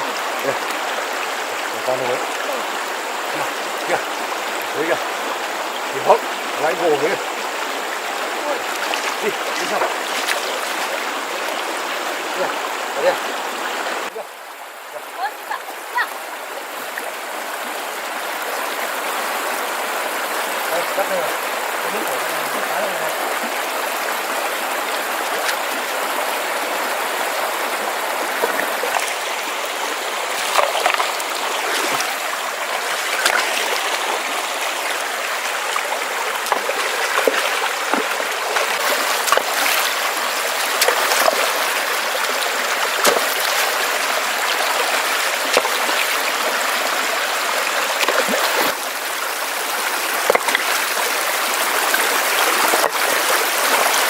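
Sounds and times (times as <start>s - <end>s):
stream rushing over rocks: 0.0s - 54.0s
sharp splashes: 5.9s - 11.6s, 28.2s - 54.0s.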